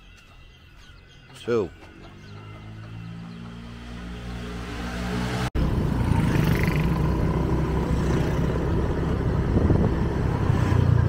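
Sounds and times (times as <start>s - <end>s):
wind noise on microphone: 8.0s - 11.0s.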